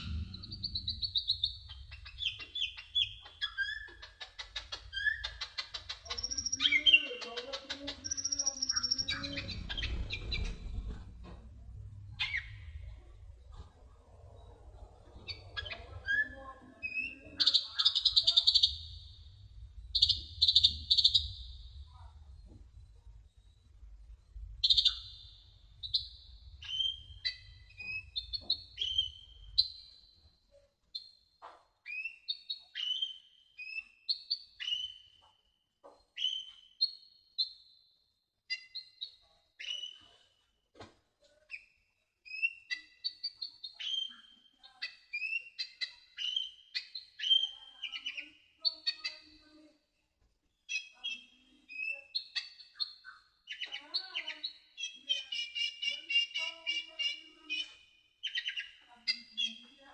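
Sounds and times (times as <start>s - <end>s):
low hum: 0.0s - 3.3s, 9.0s - 16.8s, 18.6s - 29.6s
bird high whistled chirps: 0.0s - 7.4s, 8.0s - 10.6s, 12.2s - 12.9s, 15.3s - 22.4s, 24.6s - 30.1s, 31.8s - 35.2s, 36.1s - 37.7s, 38.5s - 40.2s, 42.3s - 49.4s, 50.7s - 59.6s.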